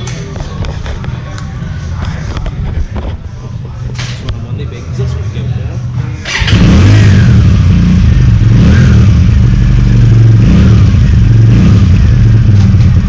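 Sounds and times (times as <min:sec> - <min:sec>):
motorcycle engine revving: 0:06.2 - 0:13.0.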